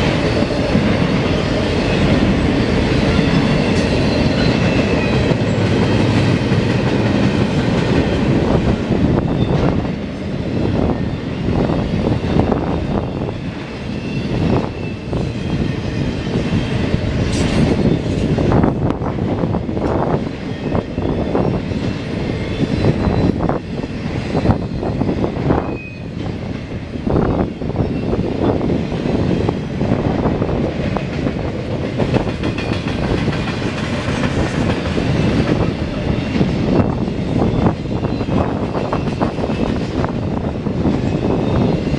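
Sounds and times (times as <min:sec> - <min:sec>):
steel wheels rumbling on rail: 0:00.0 - 0:41.9
faint high wheel squeal: 0:22.4 - 0:23.6
wheels clickety-clack: 0:30.6 - 0:37.0.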